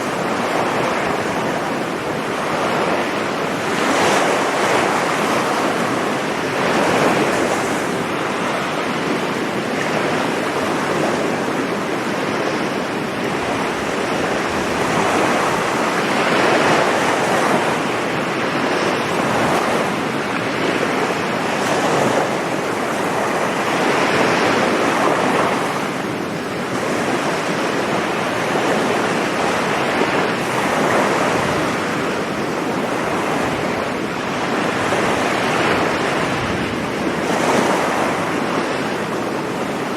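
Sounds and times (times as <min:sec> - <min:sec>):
surf breaking on a beach: 0:00.0 - 0:39.9
wind buffeting microphone: 0:00.0 - 0:39.9.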